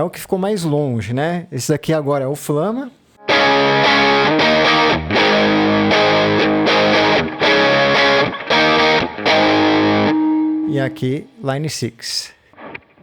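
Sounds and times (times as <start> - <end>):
distorted electric guitar chords: 3.2 - 10.9.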